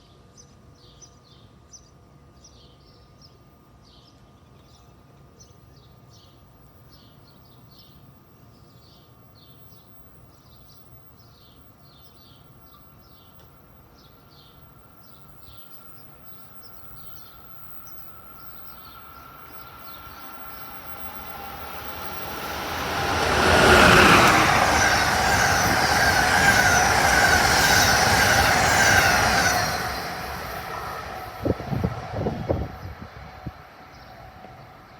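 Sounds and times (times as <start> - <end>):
train passing at speed: 11.8 - 34.9
wheels rushing on rail: 11.8 - 34.9.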